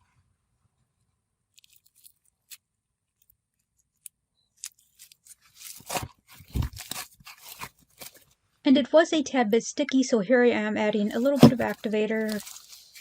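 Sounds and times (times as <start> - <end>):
crackly slime squishing: 1.5 - 8.3.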